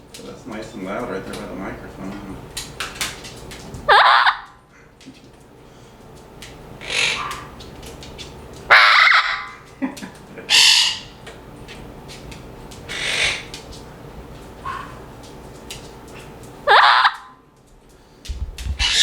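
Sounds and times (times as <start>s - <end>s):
parrot squawking: 3.9s - 4.5s, 6.8s - 7.6s, 8.7s - 9.6s, 10.5s - 11.1s, 12.9s - 13.5s, 14.6s - 14.9s, 16.6s - 17.3s, 18.8s - 19.0s.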